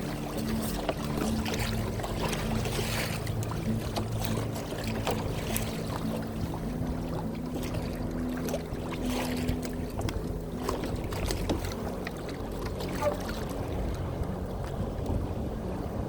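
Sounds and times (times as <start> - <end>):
water noise: 0.0 - 16.0
wind noise: 0.0 - 16.0.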